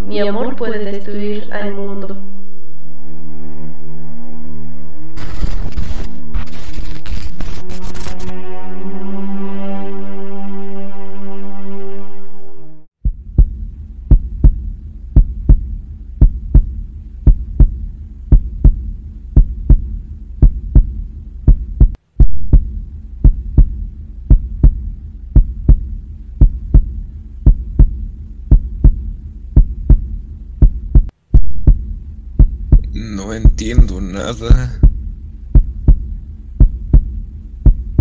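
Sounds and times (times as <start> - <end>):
low hum: 0.0 - 38.0
heartbeat: 5.2 - 8.3, 13.0 - 38.0.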